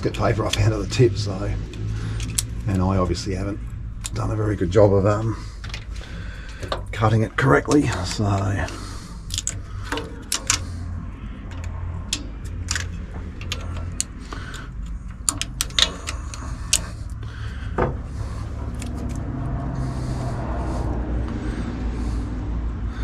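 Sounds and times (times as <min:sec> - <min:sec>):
metal clicks of hand tools: 0:00.0 - 0:03.0, 0:05.6 - 0:19.3
steady low hum: 0:00.0 - 0:23.0.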